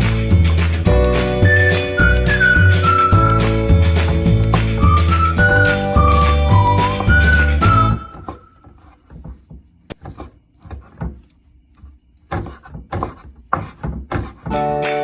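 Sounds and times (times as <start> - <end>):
background music: 0.0 - 8.4, 14.5 - 15.0.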